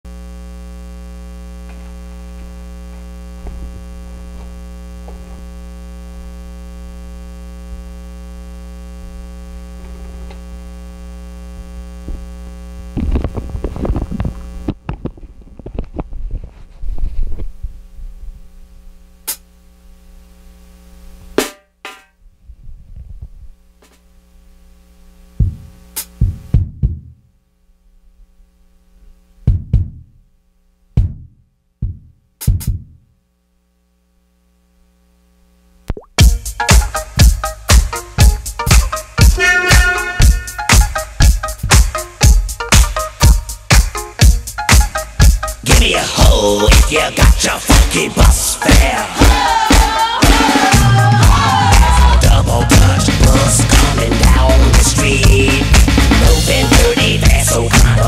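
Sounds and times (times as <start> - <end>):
electrical mains hum: 0.1 - 58.0
drum hits and knocks: 21.4 - 22.1, 25.4 - 27.2, 29.4 - 30.2, 31.0 - 33.0, 36.2 - 46.0.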